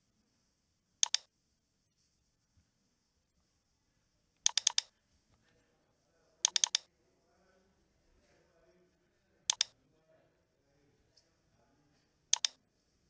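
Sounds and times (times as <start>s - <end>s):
computer mouse clicking: 1.0s - 1.3s, 4.4s - 4.9s, 6.4s - 6.9s, 9.5s - 9.8s, 12.3s - 12.6s.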